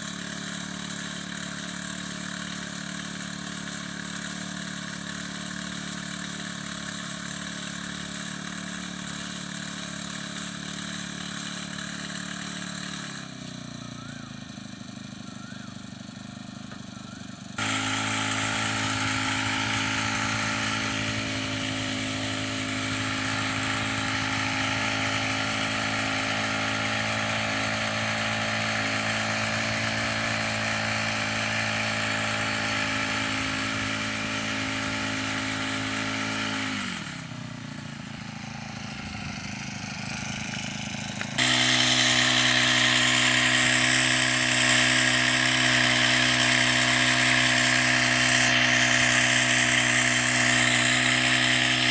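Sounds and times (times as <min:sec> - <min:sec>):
small engine running: 0:00.0 - 0:51.9
higher-pitched engine sound: 0:13.1 - 0:51.9.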